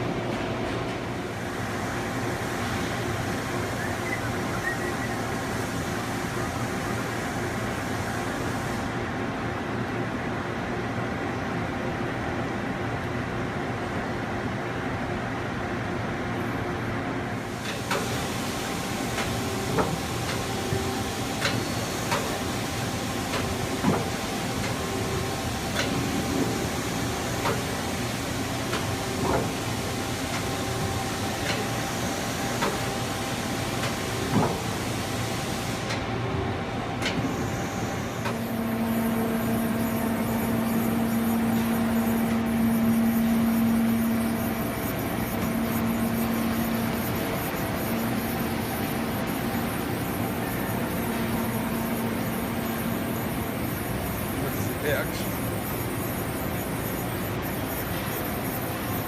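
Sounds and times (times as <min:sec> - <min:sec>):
hiss: 0:17.4 - 0:36.0
lathe humming: 0:37.3 - 0:59.0.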